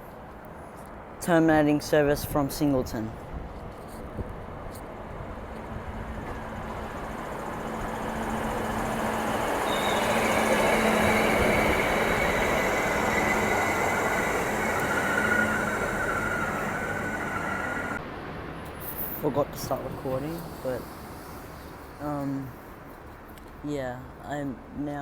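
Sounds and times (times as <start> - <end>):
rolling train noise: 0.0 - 24.8
diesel engine drone: 5.1 - 18.1
high-pitched brake squealing: 8.5 - 18.0.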